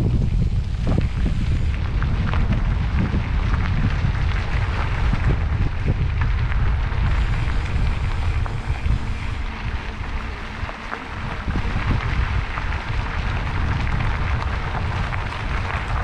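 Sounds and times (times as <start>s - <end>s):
bike rolling noise: 0.0s - 16.0s
wind rumble on microphone: 0.0s - 16.0s.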